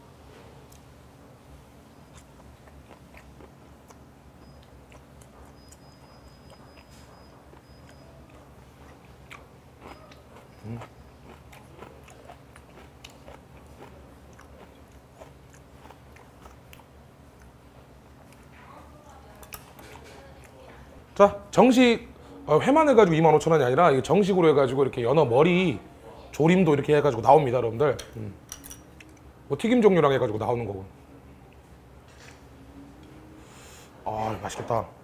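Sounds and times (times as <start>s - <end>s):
chewing raw fish: 2.0s - 18.6s.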